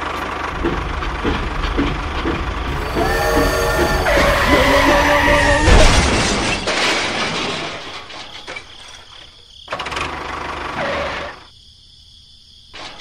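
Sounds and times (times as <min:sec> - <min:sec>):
tractor engine running: 0:00.0 - 0:06.9
crash clatter: 0:00.2 - 0:09.3.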